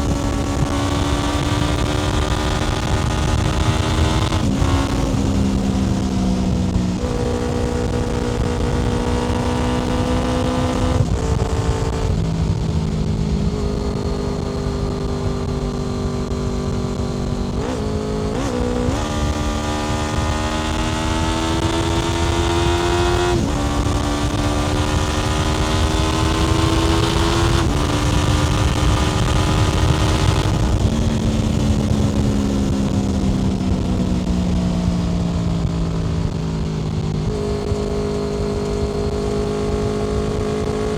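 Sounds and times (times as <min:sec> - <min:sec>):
motorcycle engine revving: 0:00.0 - 0:40.9
road and wind noise: 0:00.0 - 0:40.9.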